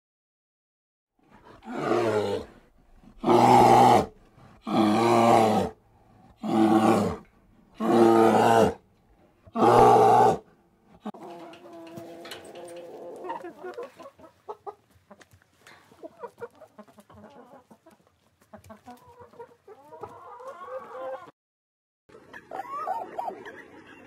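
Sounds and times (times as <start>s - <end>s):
lion roaring: 1.3s - 5.8s, 6.4s - 8.8s, 9.5s - 10.4s.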